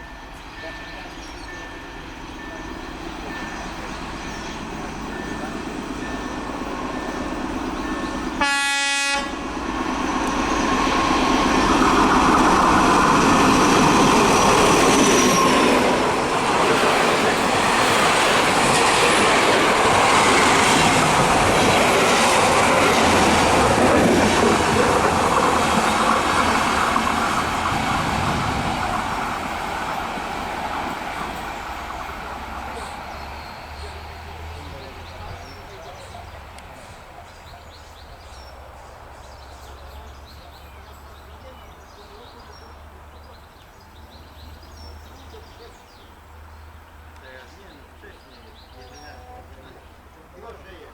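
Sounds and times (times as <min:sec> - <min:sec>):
train rumble and wheel clatter: 0:00.0 - 0:50.9
train horn blast: 0:08.4 - 0:09.4.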